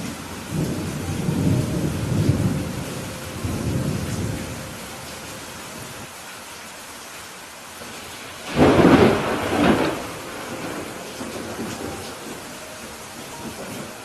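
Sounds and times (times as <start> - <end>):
steady rain falling: 0.0 - 14.0
rolling thunder: 0.3 - 4.8, 8.4 - 14.0.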